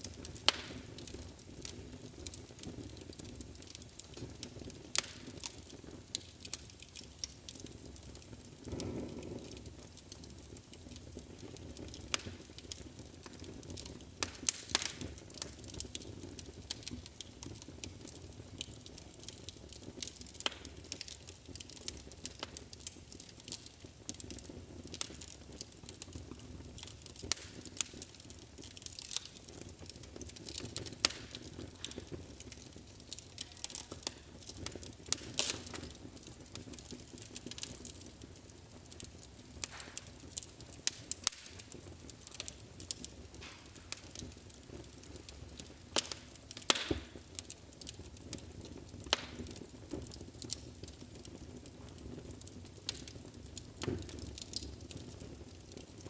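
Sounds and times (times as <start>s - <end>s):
low steady fire hiss: 0.0s - 56.0s
wood fire crackling and popping: 0.0s - 56.0s.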